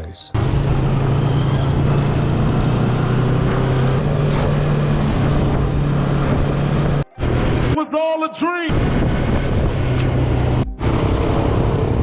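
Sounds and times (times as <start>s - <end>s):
motorcycle engine running: 0.4s - 7.0s
wind rushing over microphone: 8.7s - 12.0s.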